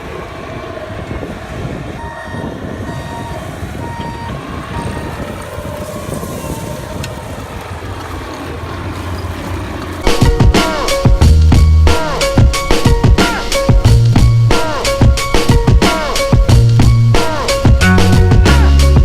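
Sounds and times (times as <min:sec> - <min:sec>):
construction machine engine running: 0:00.0 - 0:19.0
reversing alarm beeping: 0:02.0 - 0:06.6.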